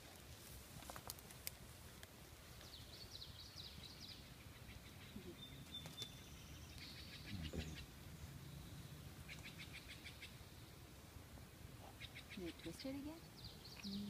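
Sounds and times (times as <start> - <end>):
faint bird chirps: 2.6 - 10.9, 11.8 - 14.0.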